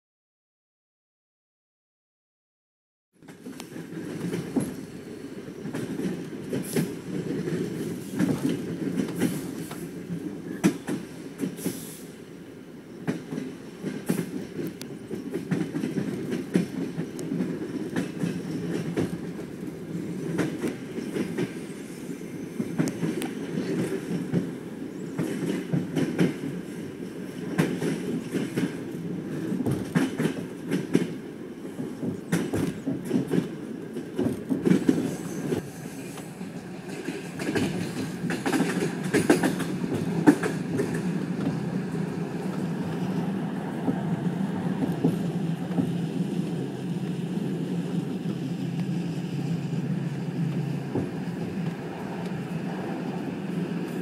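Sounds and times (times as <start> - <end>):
train wheels rumbling on rails: 3.2 - 54.0
track clicks and knocks: 36.9 - 41.7.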